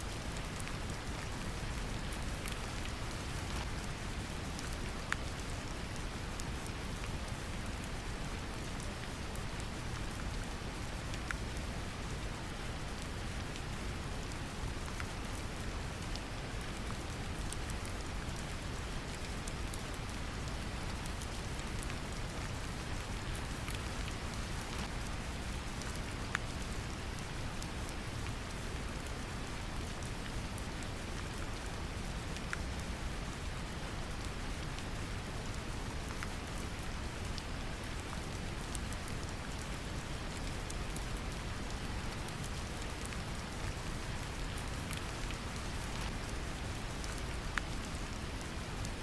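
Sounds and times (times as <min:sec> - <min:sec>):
gentle rain pattering: 0:00.0 - 0:49.0.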